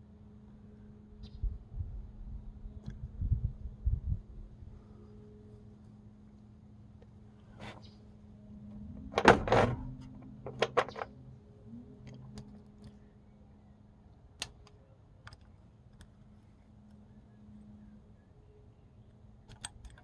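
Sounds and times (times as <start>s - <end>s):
faint steady hum: 0.0s - 20.0s
metal tools clinking on engine parts: 10.4s - 11.1s.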